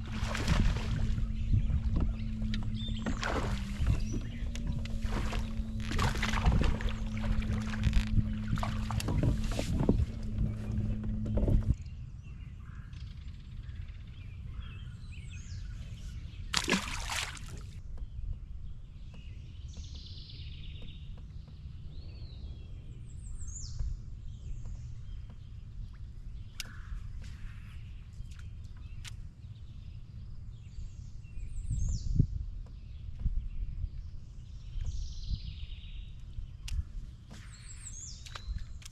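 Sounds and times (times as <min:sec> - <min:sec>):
low rumble: 0:00.0 - 0:21.1
birds chirping: 0:00.0 - 0:38.9.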